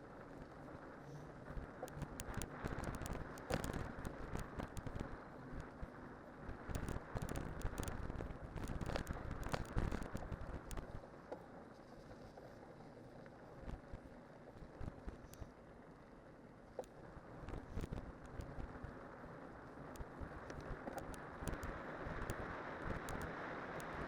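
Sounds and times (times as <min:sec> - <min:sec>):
wind noise on microphone: 0:06.5 - 0:10.9.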